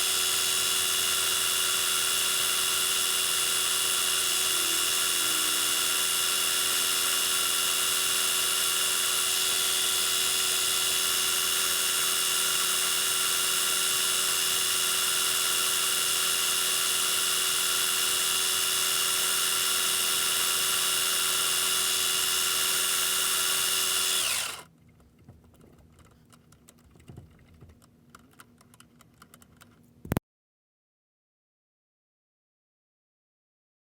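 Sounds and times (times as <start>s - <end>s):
metal lathe whining: 0.0s - 24.6s.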